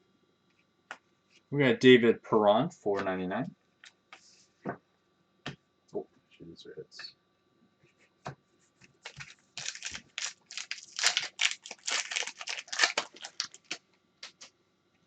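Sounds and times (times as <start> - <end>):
cards sliding and rustling: 9.0 - 14.5.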